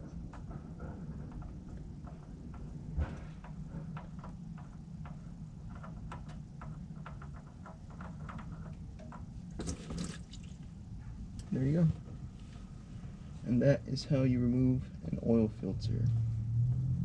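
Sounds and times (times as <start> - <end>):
low steady hum: 0.0 - 17.0
oil filter clicks and taps: 4.0 - 10.6.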